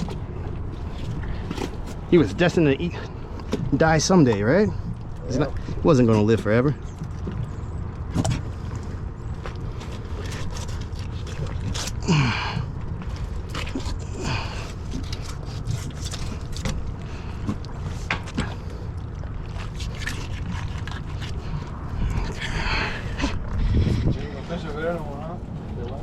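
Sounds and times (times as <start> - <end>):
knocks and scrapes on boat deck: 0.0 - 5.8, 14.7 - 18.8
steady low rumble: 0.0 - 26.0.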